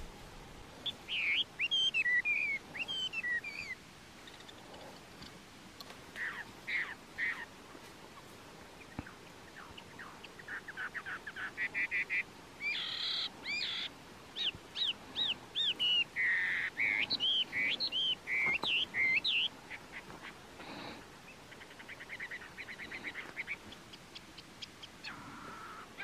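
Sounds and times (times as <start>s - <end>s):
songbird singing trills and whistles: 0.8s - 4.6s, 8.8s - 20.0s.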